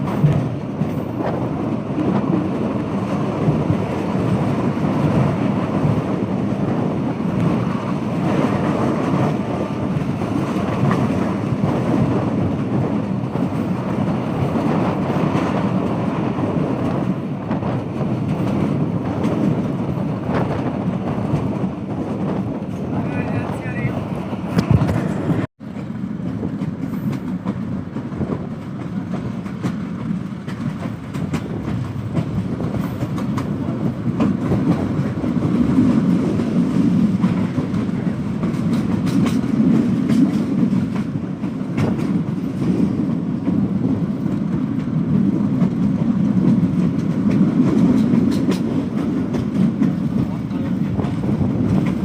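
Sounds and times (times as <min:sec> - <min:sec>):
train rumble: 0:00.0 - 0:52.0
wheels clacking over rail joints: 0:24.4 - 0:52.0.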